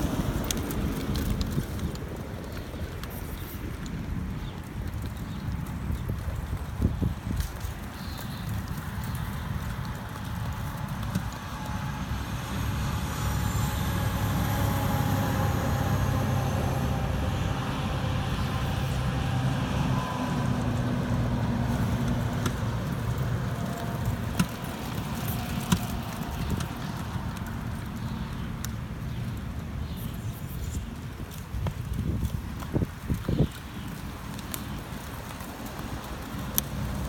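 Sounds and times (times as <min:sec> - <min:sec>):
vehicle engine rumbling: 0:00.0 - 0:37.0.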